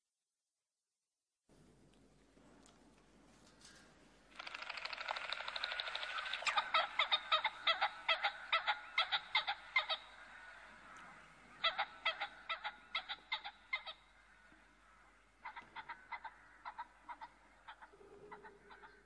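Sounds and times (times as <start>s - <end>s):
harsh bird calls: 4.4s - 19.0s.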